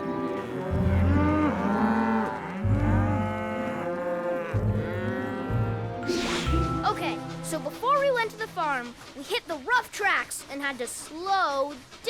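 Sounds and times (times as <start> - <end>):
cartoon cows mooing: 0.0 - 6.4
background music: 0.0 - 9.0.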